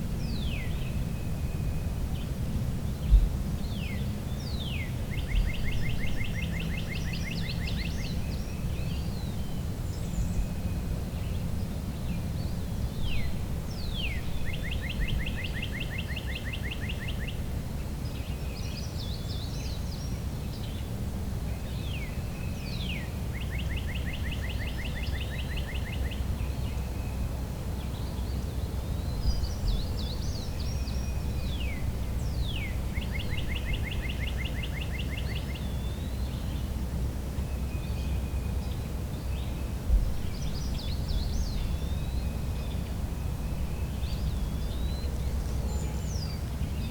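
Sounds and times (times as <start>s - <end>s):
low background rumble: 35.6s - 46.9s.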